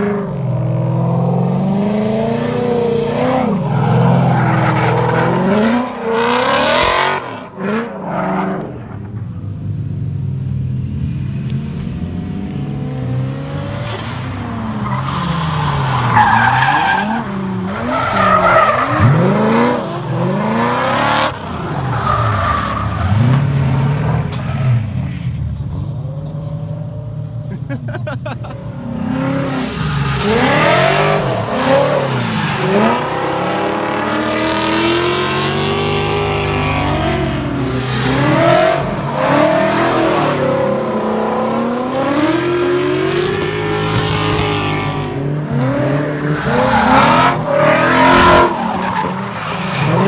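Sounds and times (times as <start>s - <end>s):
car engines revving: 0.0s - 50.0s
tyres squealing and skidding: 2.3s - 9.2s, 13.7s - 26.6s, 27.6s - 50.0s.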